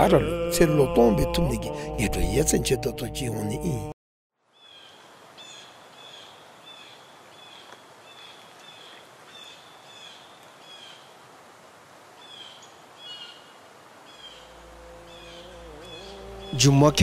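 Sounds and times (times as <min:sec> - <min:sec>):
bird chirping: 0:14.1 - 0:17.0.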